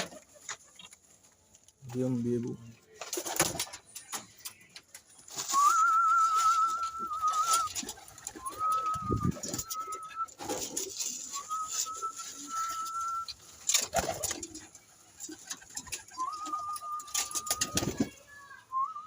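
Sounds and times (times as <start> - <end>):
pigeons pecking and scuffling: 0.0 - 18.9
pigeons cooing: 5.3 - 18.2
thin wavering whistle tones: 5.5 - 13.4, 16.1 - 18.0, 18.7 - 19.0.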